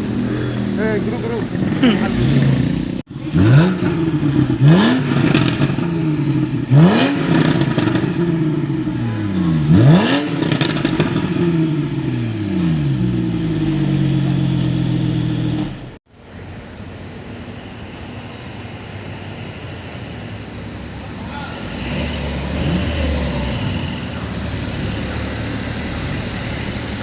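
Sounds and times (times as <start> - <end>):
sports car engine revving: 0.0 - 16.0, 21.6 - 27.0.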